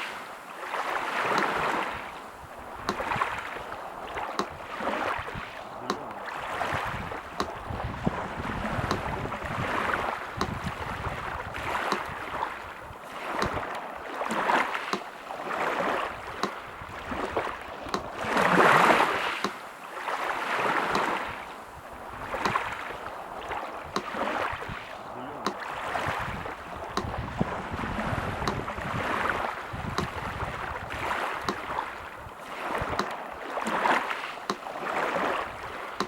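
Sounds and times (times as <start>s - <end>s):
sea surf washing: 0.0s - 36.0s
metronome ticking: 4.4s - 4.6s, 7.4s - 7.6s, 8.8s - 9.1s, 10.4s - 10.6s, 28.4s - 28.6s.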